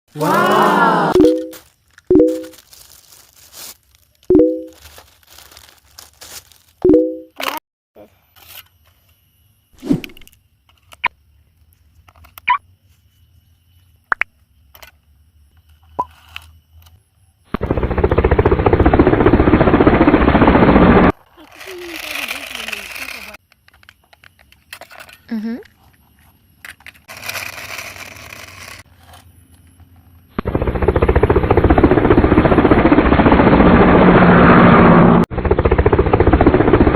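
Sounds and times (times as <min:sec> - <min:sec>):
helicopter rotor beating: 0:17.5 - 0:23.4, 0:30.3 - 0:36.9
toy helicopter rotor buzzing: 0:21.4 - 0:23.4, 0:27.1 - 0:29.2
engine hum: 0:28.2 - 0:36.9.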